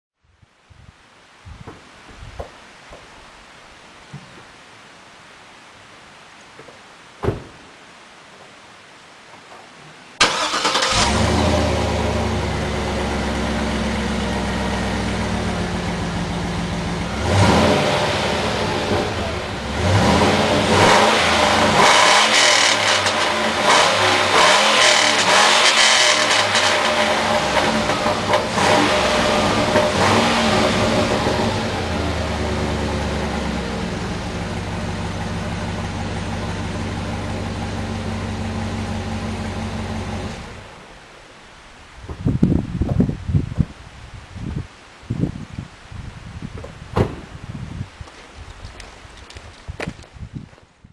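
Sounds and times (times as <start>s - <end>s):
truck engine idling and revving: 10.2s - 41.0s.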